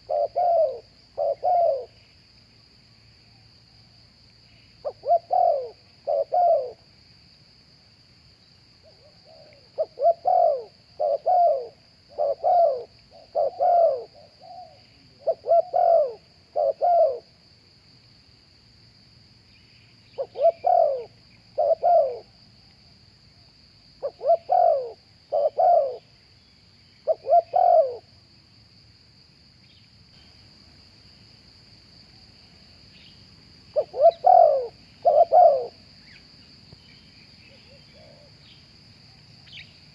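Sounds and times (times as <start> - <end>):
dove cooing: 0.0 - 2.0, 4.8 - 6.8, 8.8 - 17.3, 20.2 - 22.3, 24.0 - 26.0, 27.0 - 28.1, 33.7 - 35.8, 37.5 - 38.4
faint high-pitched hiss: 0.0 - 39.9.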